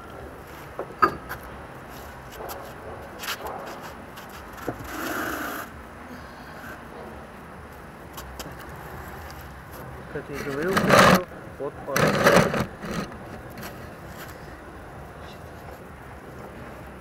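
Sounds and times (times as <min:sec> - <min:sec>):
wheel scraping on floor: 0:10.4 - 0:11.2, 0:12.0 - 0:13.8.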